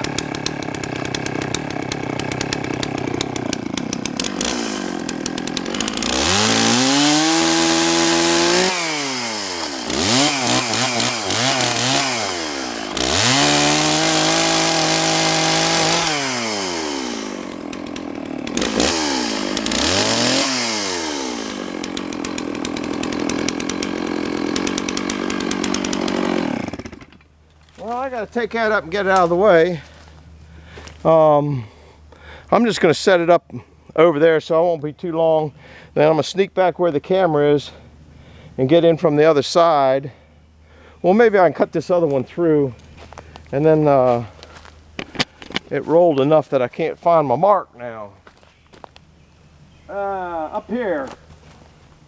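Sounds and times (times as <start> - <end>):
chainsaw cutting log: 0.0 - 31.1, 41.8 - 47.2.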